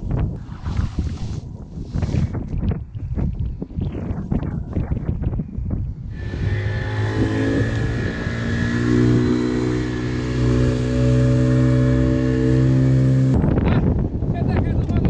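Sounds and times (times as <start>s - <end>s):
boat engine droning: 6.1s - 13.4s.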